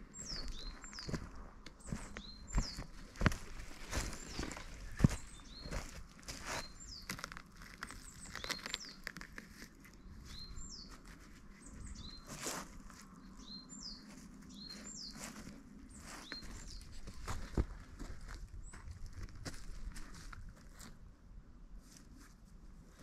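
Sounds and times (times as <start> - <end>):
small bird calling: 0.0 - 17.5
sharp clicks and crackles: 7.0 - 10.0.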